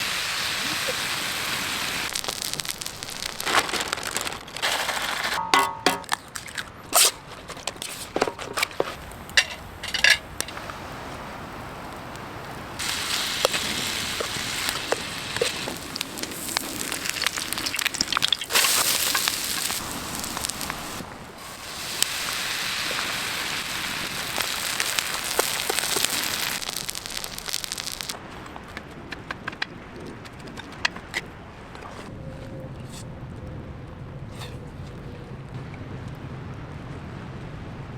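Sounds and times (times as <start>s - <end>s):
batter sizzling on hot pan: 0.0s - 5.4s, 12.8s - 28.2s.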